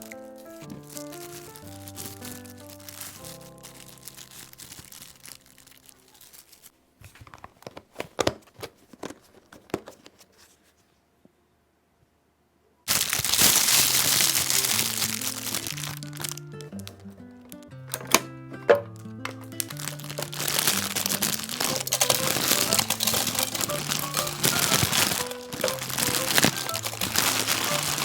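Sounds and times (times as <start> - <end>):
light background music: 0.0 - 5.8, 13.6 - 28.0
plastic packaging crinkling: 0.0 - 10.5, 12.9 - 17.0, 18.9 - 28.0.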